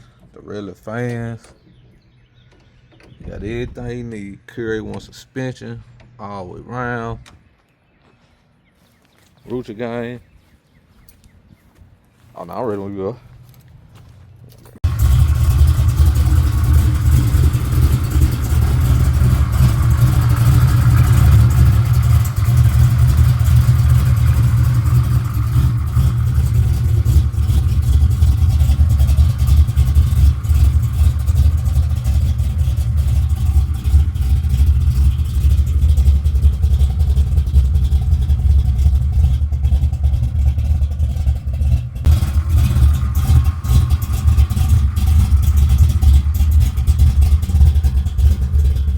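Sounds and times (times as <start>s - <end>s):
car engine starting and idling: 13.4s - 48.9s.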